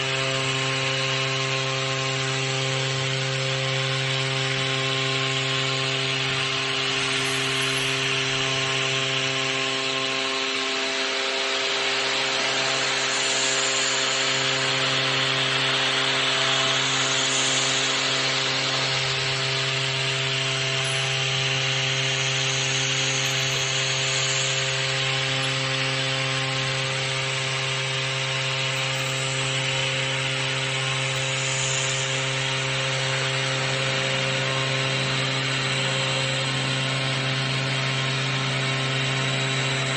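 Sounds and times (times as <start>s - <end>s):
machine humming: 0.0s - 39.9s
cutter hissing: 6.6s - 9.1s, 16.7s - 33.4s.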